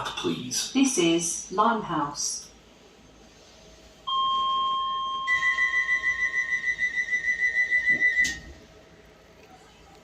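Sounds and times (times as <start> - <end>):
two-note door warning tone: 4.1 - 8.6.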